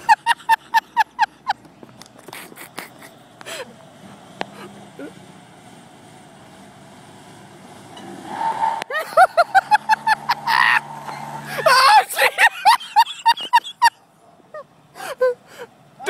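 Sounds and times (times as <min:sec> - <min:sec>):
vehicle engines under load: 0:00.0 - 0:16.0
onlookers yelling and shouting: 0:10.5 - 0:12.3.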